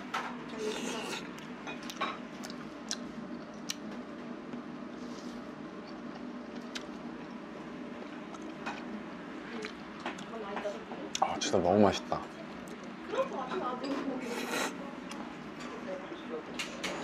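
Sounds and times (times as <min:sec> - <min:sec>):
low room hum: 0:00.0 - 0:17.0
person chewing noodles: 0:00.6 - 0:03.9, 0:04.9 - 0:07.4.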